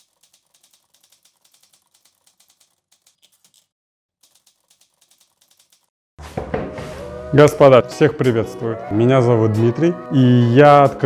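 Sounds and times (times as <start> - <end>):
faint rapid typing clicks: 0.0 - 5.9.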